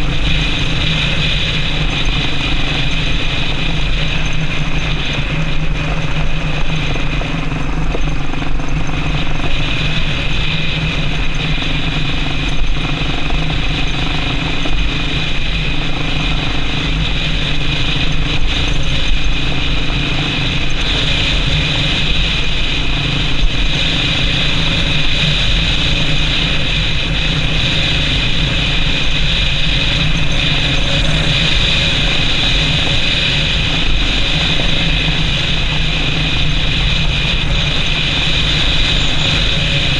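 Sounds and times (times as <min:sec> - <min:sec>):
motorcycle engine running: 0:00.0 - 0:39.9
wind and road noise hiss: 0:00.0 - 0:39.9.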